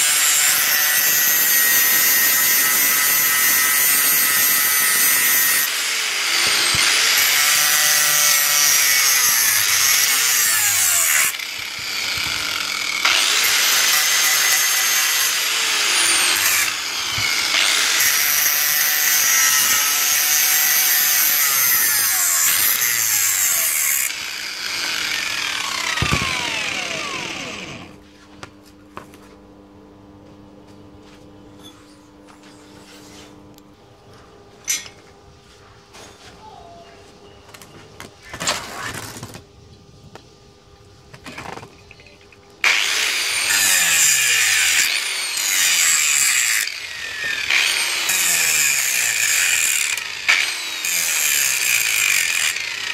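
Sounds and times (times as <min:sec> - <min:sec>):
angle grinder squealing on metal: 0:00.0 - 0:27.9, 0:42.7 - 0:52.9.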